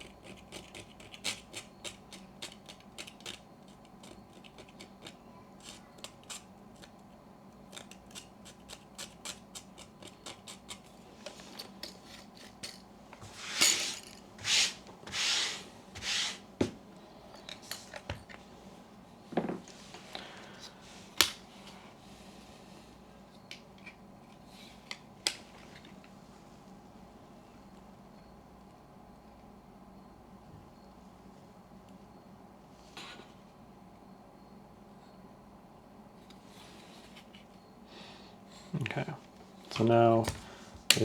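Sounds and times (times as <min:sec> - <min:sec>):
rubbing scraping strokes: 0:13.2 - 0:16.5.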